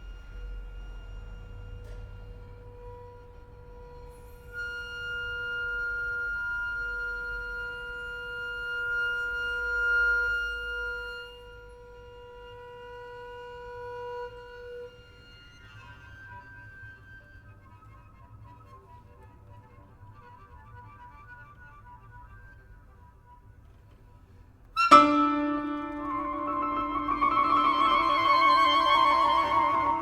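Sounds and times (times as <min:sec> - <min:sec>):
chamber ensemble held notes: 0:24.8 - 0:30.0.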